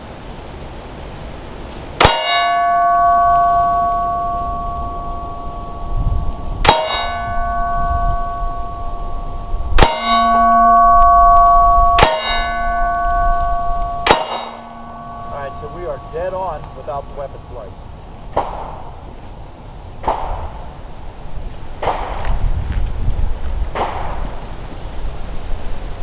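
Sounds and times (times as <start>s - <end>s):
metallic ring: 2.0s - 17.0s
pistol shots: 20.0s - 20.5s.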